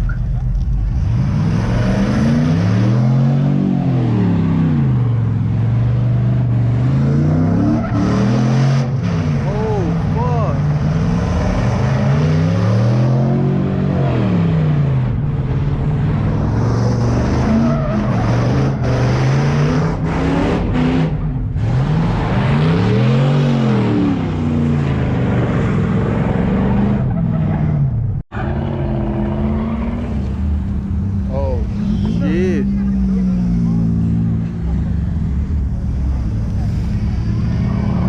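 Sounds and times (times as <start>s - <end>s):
car engine revving hard: 1.0s - 15.0s, 16.3s - 27.1s
tyres spinning and squealing: 16.3s - 30.6s, 31.2s - 38.0s.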